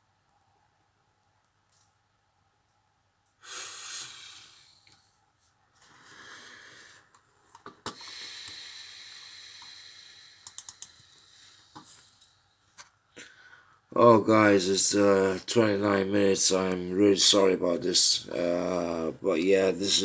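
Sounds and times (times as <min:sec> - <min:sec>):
hissing noise near microphone: 0:03.4 - 0:07.1, 0:13.9 - 0:20.0
computer mouse clicks: 0:10.4 - 0:11.1.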